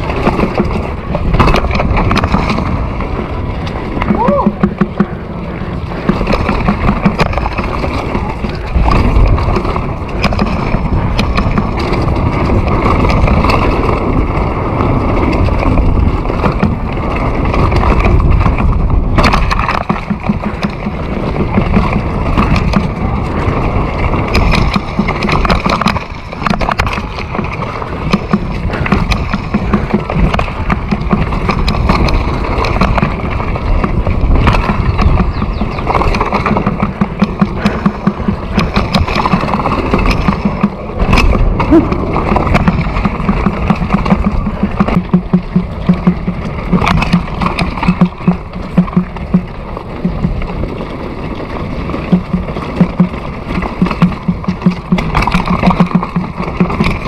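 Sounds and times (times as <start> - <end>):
knocks and rattles: 0.0 - 57.0
riding over rough ground: 0.0 - 57.0
wind on microphone: 0.0 - 57.0.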